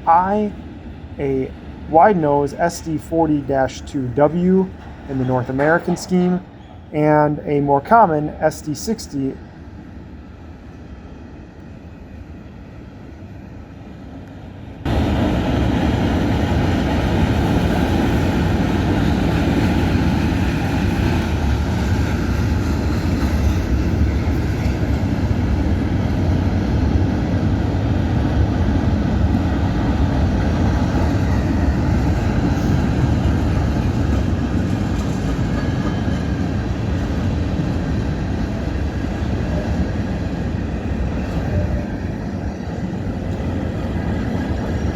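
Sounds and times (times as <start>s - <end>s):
freight train rumbling past: 0.0s - 44.9s
background noise: 1.2s - 9.4s.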